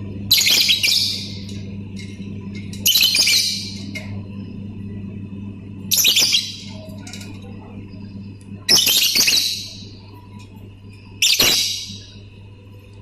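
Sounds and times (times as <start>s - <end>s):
lovebird chattering calls: 0.3s - 1.5s, 5.9s - 6.8s, 8.7s - 9.9s, 11.2s - 12.1s.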